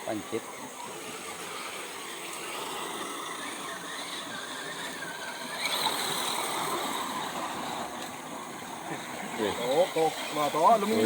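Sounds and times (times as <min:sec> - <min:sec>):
electric motor and gears whining: 0:00.0 - 0:11.0.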